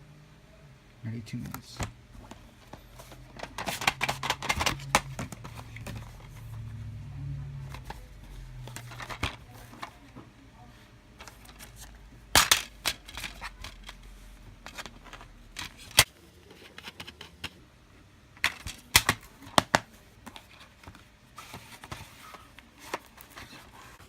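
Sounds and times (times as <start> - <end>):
plastic cases clicking: 1.4 - 6.4, 8.6 - 10.0.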